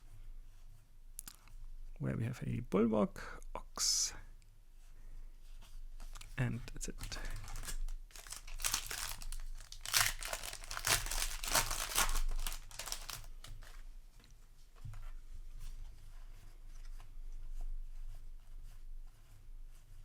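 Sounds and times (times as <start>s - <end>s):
cards rustling and clicking: 6.0s - 13.7s
plastic wrapper tearing: 6.1s - 13.6s.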